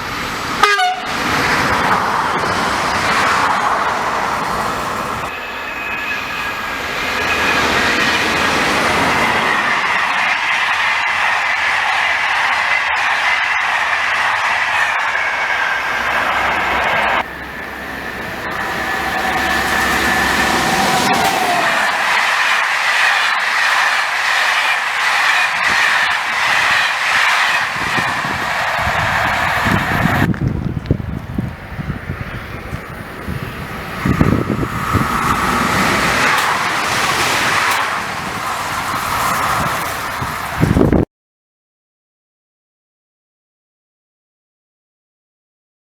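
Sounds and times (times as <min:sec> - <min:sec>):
train high whine: 0:00.0 - 0:41.0
train wheels rushing on rail: 0:00.0 - 0:41.0
wind buffeting microphone: 0:07.5 - 0:41.1
steady whine: 0:14.6 - 0:30.8.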